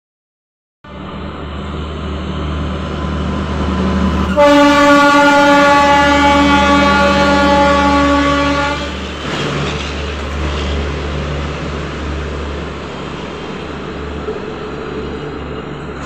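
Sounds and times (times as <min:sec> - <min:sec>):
train coaches rumbling: 0:00.9 - 0:16.0
train horn chord: 0:04.3 - 0:09.0.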